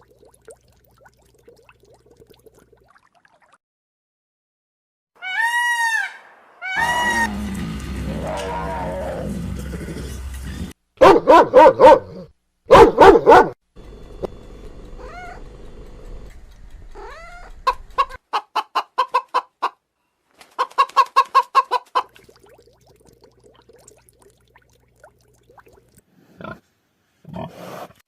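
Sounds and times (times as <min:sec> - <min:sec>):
chickens clucking: 0:16.9 - 0:19.8, 0:20.5 - 0:22.2.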